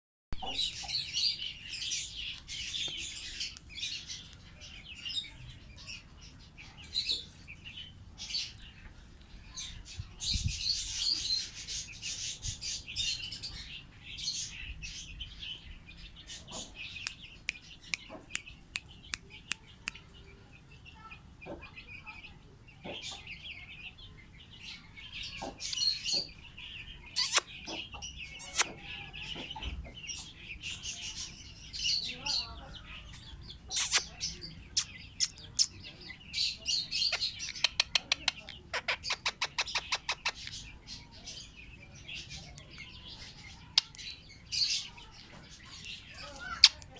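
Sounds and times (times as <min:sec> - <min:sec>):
lovebirds chirping and chattering: 0:00.4 - 0:46.9
short sharp clicks: 0:28.4 - 0:28.8, 0:33.8 - 0:34.1.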